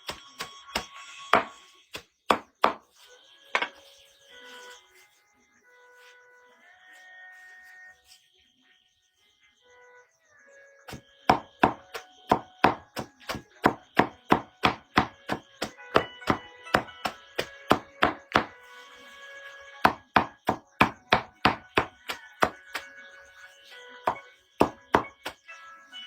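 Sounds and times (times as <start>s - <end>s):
soft background music: 0.0s - 26.0s
rapid chopping strokes: 10.9s - 18.6s, 19.8s - 22.9s.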